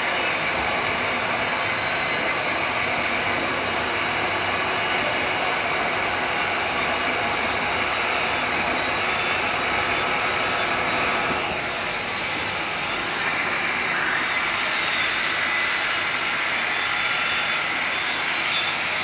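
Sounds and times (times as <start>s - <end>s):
drilling machine running: 11.3s - 19.0s.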